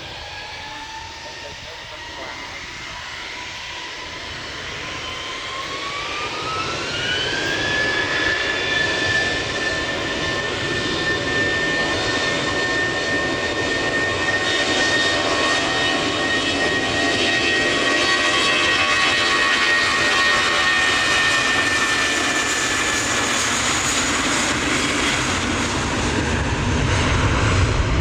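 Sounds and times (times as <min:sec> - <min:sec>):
jet engines spooling up: 0:00.0 - 0:28.0.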